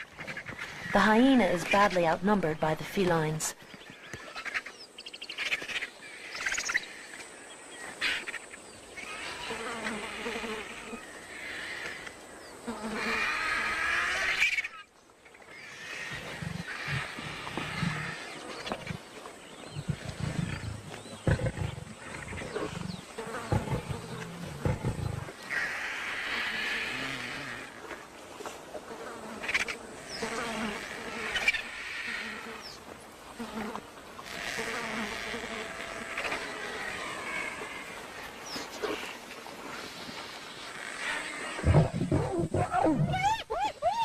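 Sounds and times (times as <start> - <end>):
high insect buzz: 8.0 - 14.6, 20.2 - 28.0, 28.8 - 42.6
lions growling and snarling: 15.8 - 27.8, 40.9 - 43.7.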